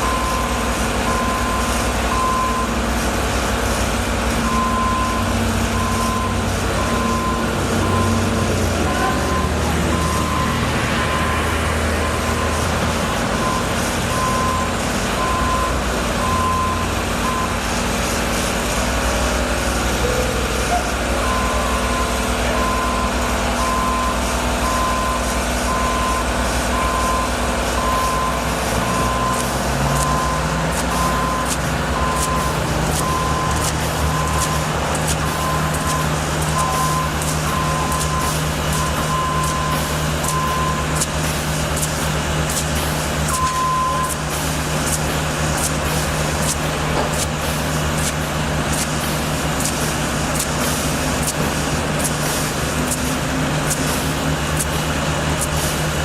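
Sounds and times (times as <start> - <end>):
reversing alarm beeping: 0.0 - 2.8, 4.4 - 12.7, 13.3 - 17.6, 20.0 - 44.3
diesel engine running: 0.0 - 56.0
rapid clicking and rattling: 30.8 - 56.0.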